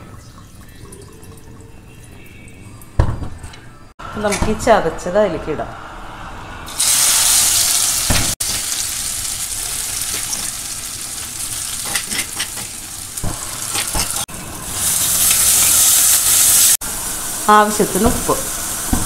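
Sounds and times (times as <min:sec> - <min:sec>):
shallots sizzling in hot oil: 0:06.7 - 0:19.0
spoon scraping metal pan: 0:11.8 - 0:12.8.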